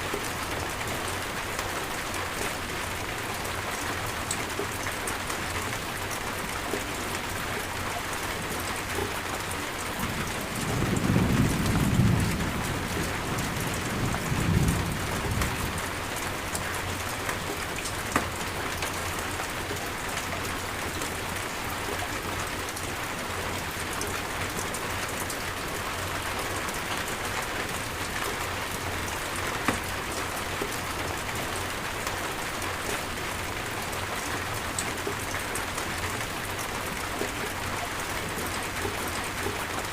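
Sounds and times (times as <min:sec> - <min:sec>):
heavy rain falling: 0:00.0 - 0:39.9
thunder rumbling: 0:10.0 - 0:16.0.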